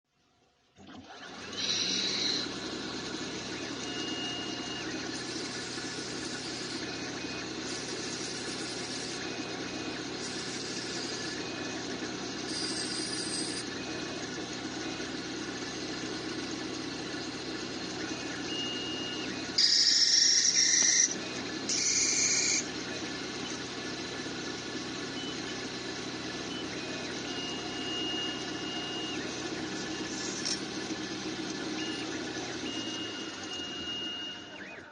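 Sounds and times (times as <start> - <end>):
lathe humming: 1.3 - 33.6
harsh high-pitched bursts: 12.5 - 13.6, 19.6 - 22.7.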